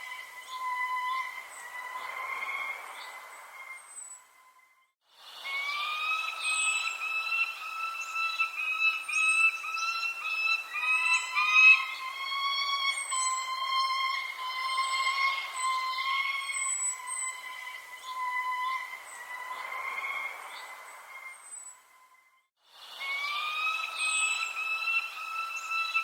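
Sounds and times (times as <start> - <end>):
tone-like bird calls: 5.4 - 21.8, 23.0 - 26.0.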